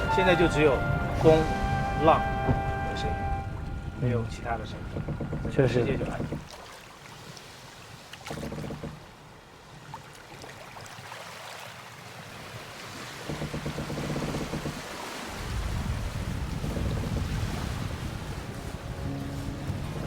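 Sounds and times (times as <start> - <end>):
water rushing along hull: 0.0 - 20.0
wind: 0.0 - 20.0
wind buffeting microphone: 13.3 - 20.0.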